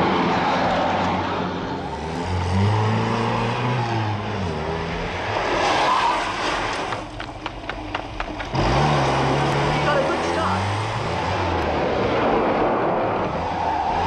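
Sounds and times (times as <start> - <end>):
vehicle engine running: 6.9 - 11.6.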